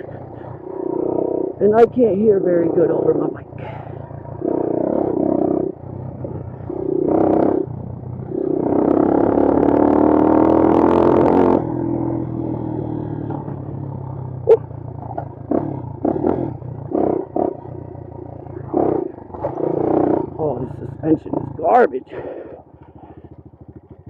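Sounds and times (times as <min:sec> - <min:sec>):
knocks and clunks over rough trail: 0:00.0 - 0:24.0
motorcycle engine revving: 0:00.0 - 0:24.0.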